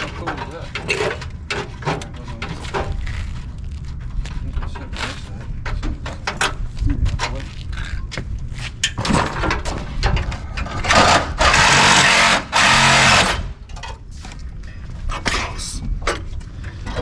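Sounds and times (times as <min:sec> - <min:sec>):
power cutting tool running: 0:11.4 - 0:13.4.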